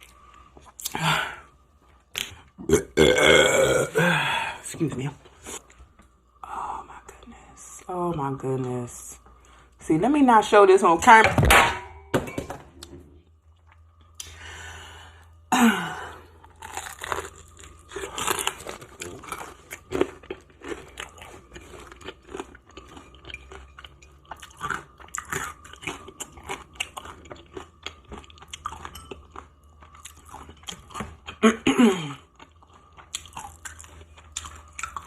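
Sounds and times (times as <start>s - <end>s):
person chewing crispy chicken: 16.4s - 31.5s, 32.1s - 35.0s.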